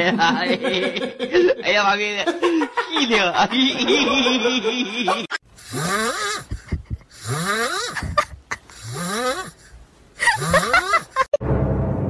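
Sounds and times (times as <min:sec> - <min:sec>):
cat snoring: 0:05.6 - 0:06.5, 0:07.1 - 0:08.0, 0:08.8 - 0:09.6.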